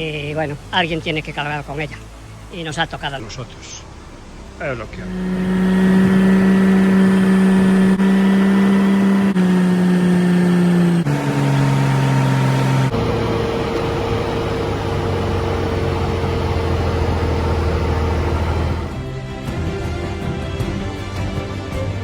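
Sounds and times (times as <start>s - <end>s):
motorcycle engine shifting gears: 5.0s - 19.0s.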